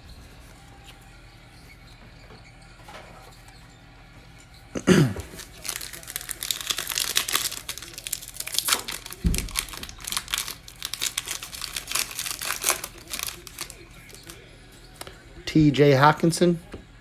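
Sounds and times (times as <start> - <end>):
foil wrapper crinkling and tearing: 5.2 - 14.4.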